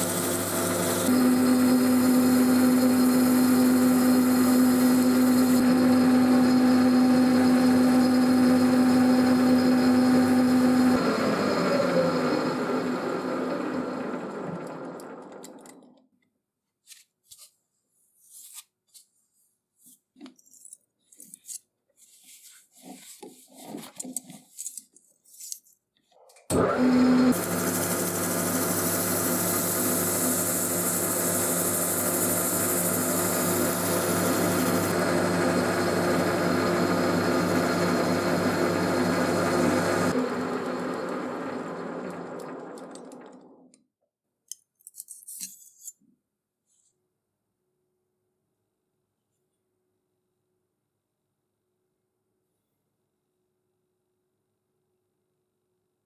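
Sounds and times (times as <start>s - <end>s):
tool hissing on material: 0.0s - 1.2s, 3.1s - 5.6s, 27.3s - 35.0s
power tool motor running: 0.0s - 15.5s, 26.5s - 43.4s.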